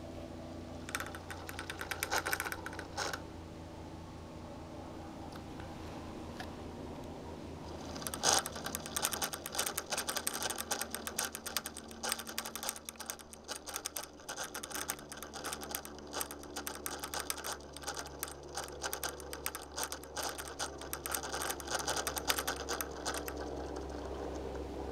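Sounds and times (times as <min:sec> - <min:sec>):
steady low hum: 0:00.0 - 0:24.9
laptop fan rattling clicks: 0:00.7 - 0:03.3, 0:07.7 - 0:24.9.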